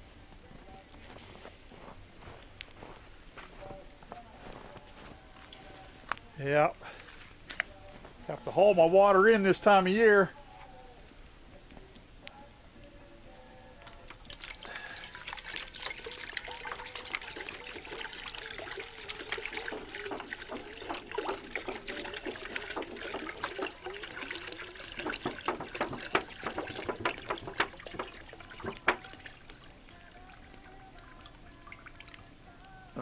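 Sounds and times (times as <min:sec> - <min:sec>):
water pouring into kettle: 0:13.9 - 0:32.4.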